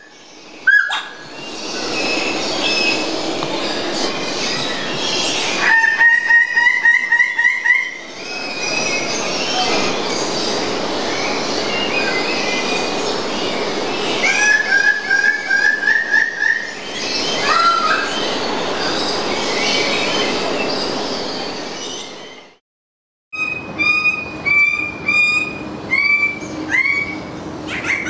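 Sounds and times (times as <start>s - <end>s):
chorus of birds chirping: 0.0s - 22.6s, 23.4s - 28.0s
bird calling rapid repeated notes: 0.7s - 1.2s.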